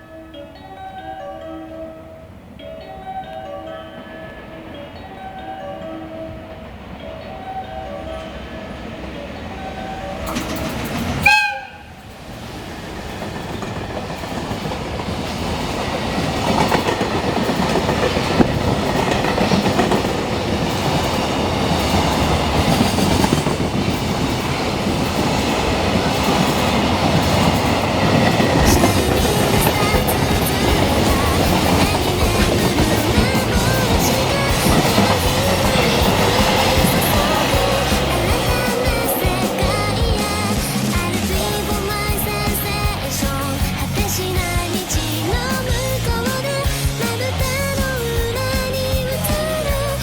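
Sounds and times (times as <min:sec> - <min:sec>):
freight train rumble: 0:06.2 - 0:50.0
train wheel clatter: 0:09.7 - 0:50.0
train horn blast: 0:11.2 - 0:12.0.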